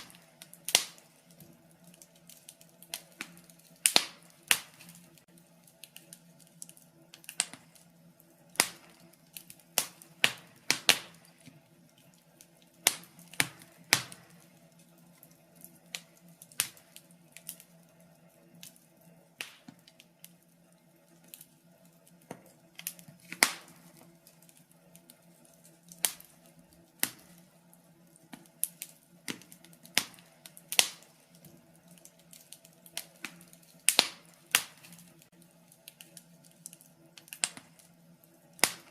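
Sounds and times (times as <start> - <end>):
sharp pops of fire: 0.0 - 17.8, 19.4 - 20.4, 21.2 - 27.6, 28.2 - 38.9
wood fire crackling: 0.0 - 38.9.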